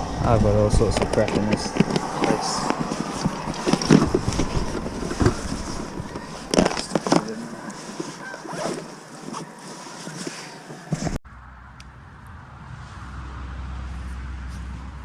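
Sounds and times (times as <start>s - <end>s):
rummaging through tackle bag: 0.8s - 11.2s.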